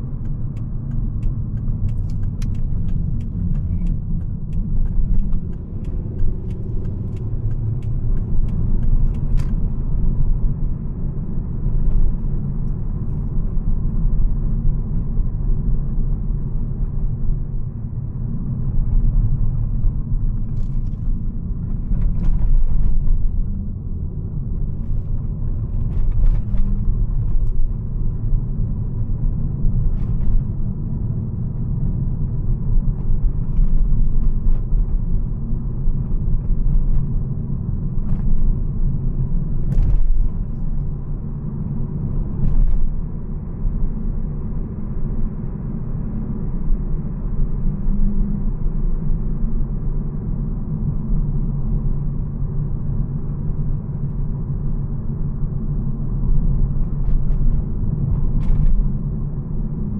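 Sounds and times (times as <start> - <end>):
car engine rumble: 0.0 - 59.9
road noise: 0.0 - 59.9.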